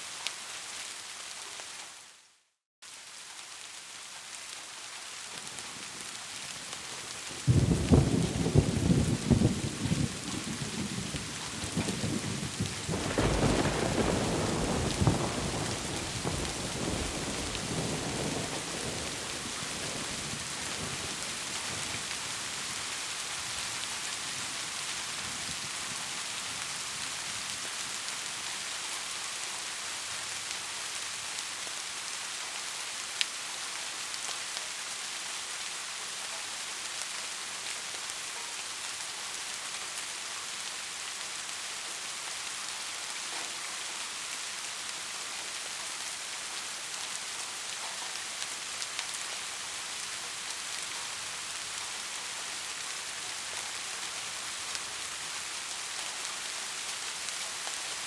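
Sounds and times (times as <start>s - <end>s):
steady rain falling: 0.0s - 58.0s
thunder rumbling: 7.5s - 21.2s.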